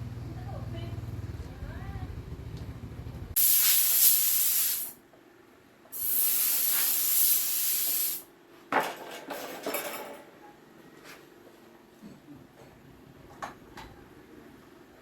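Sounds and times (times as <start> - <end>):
pressurised spray hissing: 3.4 - 5.0, 6.0 - 8.2.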